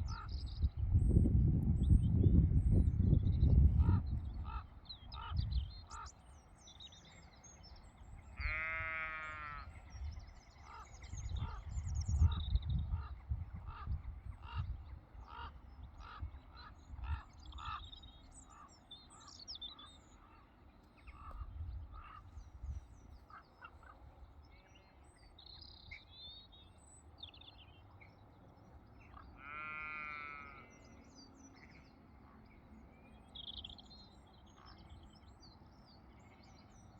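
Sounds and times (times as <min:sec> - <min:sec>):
wind buffeting microphone: 0:00.0 - 0:05.9, 0:11.0 - 0:18.0, 0:21.2 - 0:23.0
small birds chirping: 0:01.8 - 0:36.9
sheep bleating: 0:08.4 - 0:09.7, 0:29.4 - 0:31.0.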